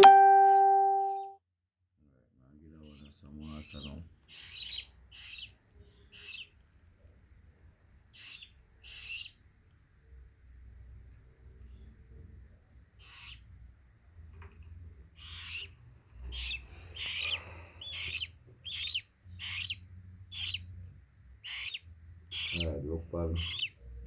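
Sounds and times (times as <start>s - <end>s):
parakeet chicks begging calls: 2.8s - 6.6s, 8.1s - 9.4s, 13.0s - 13.5s, 15.2s - 20.8s, 21.4s - 23.9s.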